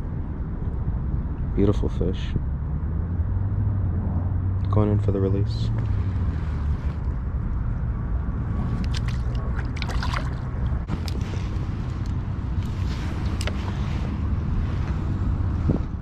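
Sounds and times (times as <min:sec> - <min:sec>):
wind rumble on microphone: 0:00.0 - 0:16.0
water splashing against kayak: 0:08.6 - 0:11.6.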